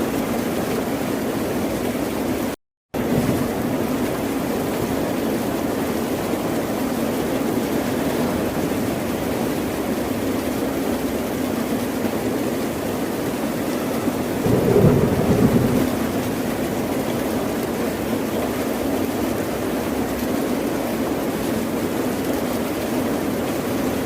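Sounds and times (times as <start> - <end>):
ocean surf rushing: 14.3 - 17.2.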